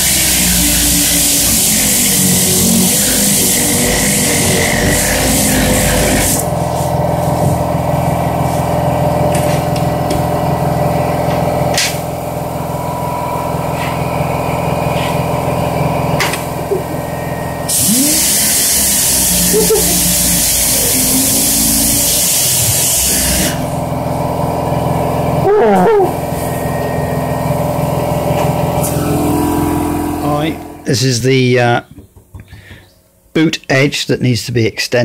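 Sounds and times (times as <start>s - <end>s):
power tool motor hum: 0.0s - 25.4s
loud even hiss: 17.6s - 23.8s.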